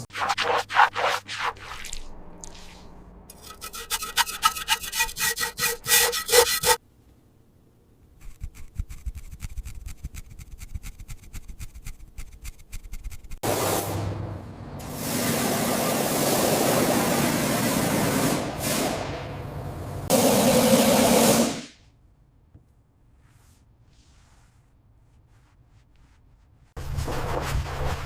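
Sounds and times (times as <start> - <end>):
rapid light scratching: 0.1 - 6.8, 8.2 - 13.4
hand filing strokes: 3.3 - 6.8, 8.2 - 13.4.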